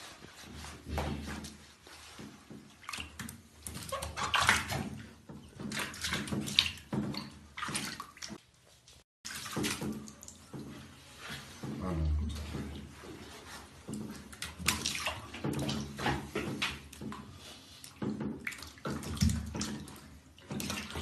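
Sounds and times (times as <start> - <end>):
hands rubbing wet fur: 0.0 - 4.9
water splashing in bathtub: 0.0 - 21.0.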